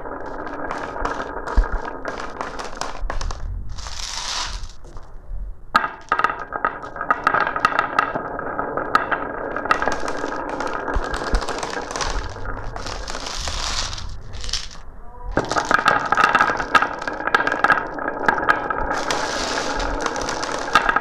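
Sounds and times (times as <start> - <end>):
marbles rolling on a track: 0.0 - 4.8, 5.8 - 21.0
rushing sound: 11.0 - 15.1.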